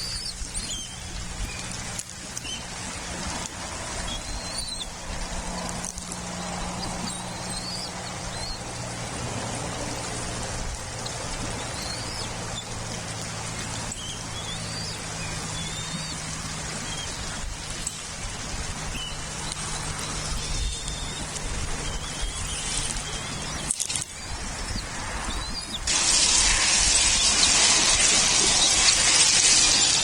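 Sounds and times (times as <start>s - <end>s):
faint high bird chirps: 0.0s - 2.7s, 4.0s - 5.0s, 5.8s - 8.8s, 10.7s - 12.8s, 13.6s - 18.0s, 18.9s - 30.0s
steady hiss: 0.0s - 25.2s, 25.8s - 30.0s
low constant hum: 0.0s - 30.0s.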